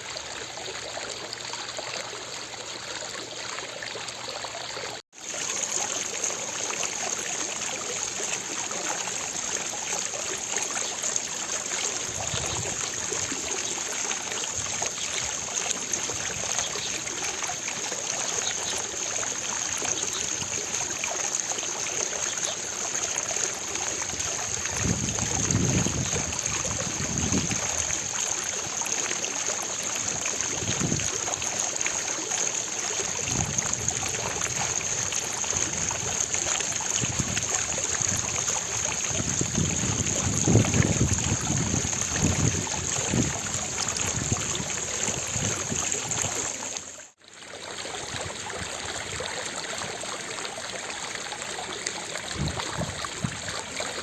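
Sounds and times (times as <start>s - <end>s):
fountain water splashing: 0.0s - 54.0s.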